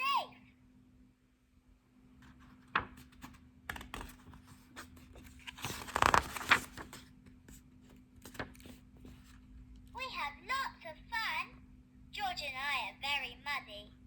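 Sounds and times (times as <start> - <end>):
paper rustling: 2.2 - 9.4.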